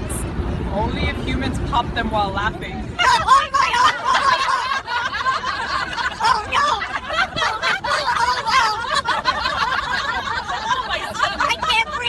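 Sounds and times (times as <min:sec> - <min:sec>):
high-pitched laughter: 0:03.0 - 0:12.0.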